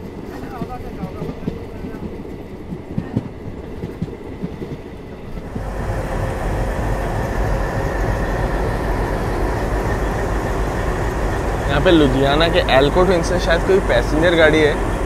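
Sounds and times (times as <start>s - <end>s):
diesel locomotive drone: 0.0s - 15.0s.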